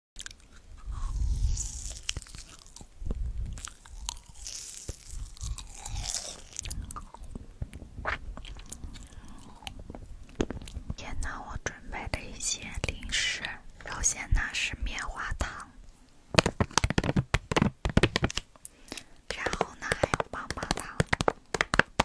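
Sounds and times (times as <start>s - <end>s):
crunchy chewing: 0.2s - 10.9s.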